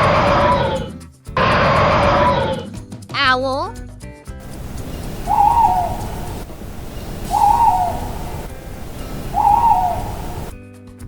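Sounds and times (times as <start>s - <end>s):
owl hooting: 0.0s - 0.9s, 4.4s - 10.6s
steady background hiss: 4.4s - 10.6s.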